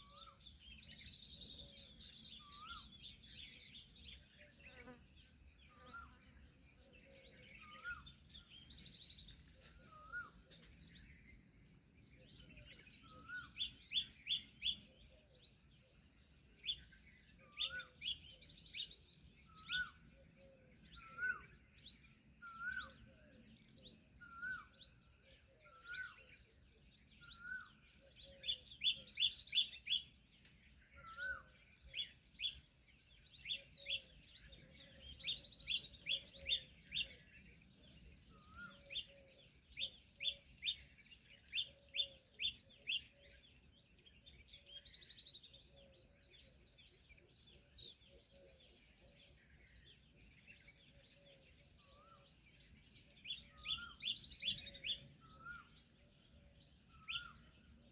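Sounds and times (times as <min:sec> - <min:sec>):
small birds chirping: 0:00.0 - 0:57.9
lower upswept bird call: 0:27.2 - 0:30.2, 0:30.8 - 0:37.4, 0:50.9 - 0:57.9.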